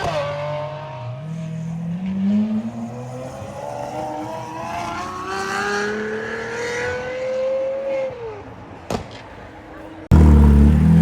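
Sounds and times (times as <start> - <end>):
car engine accelerating: 10.1 - 11.0.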